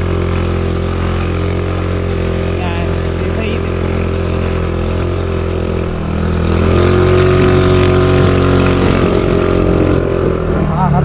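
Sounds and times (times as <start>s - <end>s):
vehicle engine revving: 0.0s - 11.0s.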